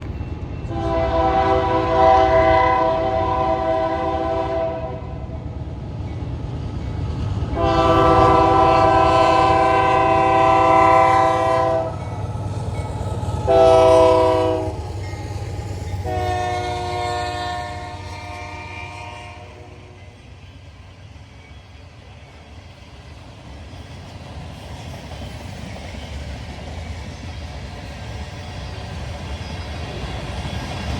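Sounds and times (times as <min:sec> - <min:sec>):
low rumble of train: 0:00.0 - 0:30.9
train air horn blasts: 0:00.7 - 0:05.3, 0:07.6 - 0:12.0, 0:13.4 - 0:14.8, 0:16.0 - 0:20.2.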